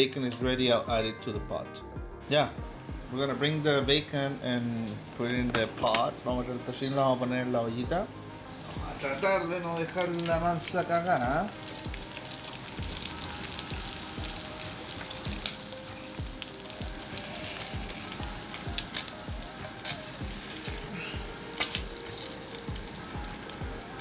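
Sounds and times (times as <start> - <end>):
low thumping beat: 0.4 - 3.2, 3.8 - 4.1, 5.4 - 6.6, 10.3 - 24.0
bacon sizzling in frying pan: 9.0 - 24.0
utensil clicking against pan: 18.5 - 23.6.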